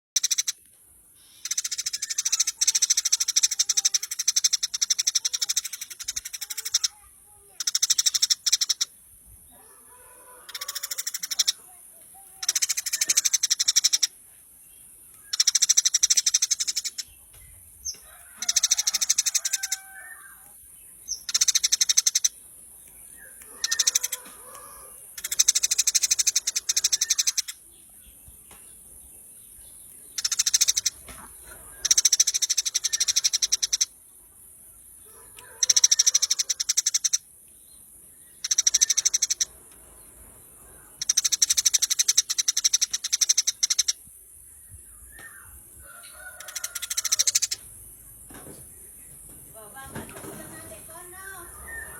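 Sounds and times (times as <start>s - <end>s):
sparrows chirping: 0.2s - 51.9s
steady high hiss: 0.5s - 6.8s.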